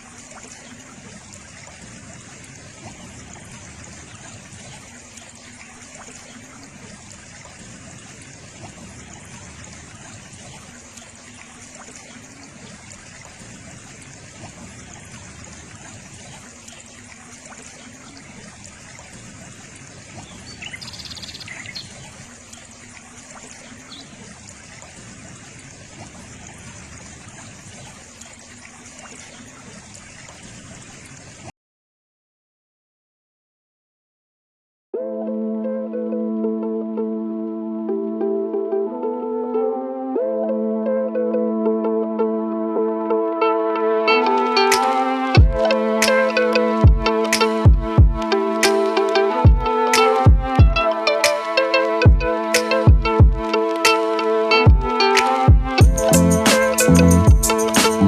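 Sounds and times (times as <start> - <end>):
water trickling: 0.0 - 31.5, 44.2 - 58.0.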